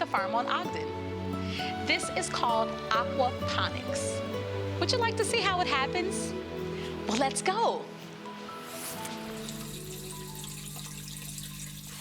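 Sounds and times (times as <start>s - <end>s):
water trickling: 8.7s - 12.0s.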